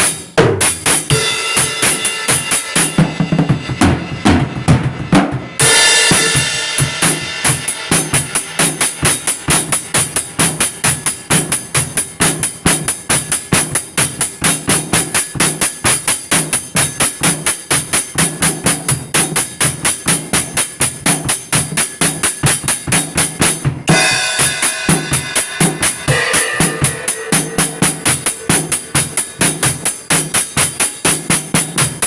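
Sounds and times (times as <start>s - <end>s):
drum kit beat: 0.0s - 32.0s
loud ringing drum hit: 1.1s - 11.0s, 23.9s - 31.0s.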